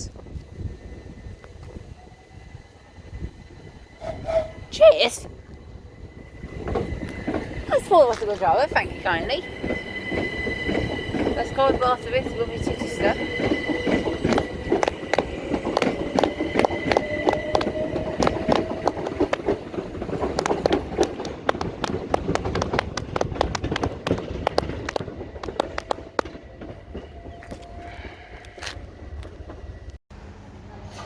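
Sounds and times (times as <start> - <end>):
train wheels clattering over rails: 6.4 - 27.6.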